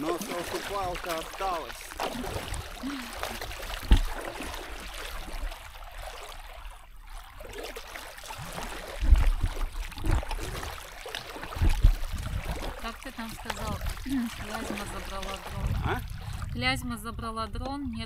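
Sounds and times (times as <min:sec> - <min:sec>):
water trickling and splashing: 0:00.0 - 0:18.0
short low thumps: 0:03.8 - 0:04.3, 0:11.6 - 0:12.7.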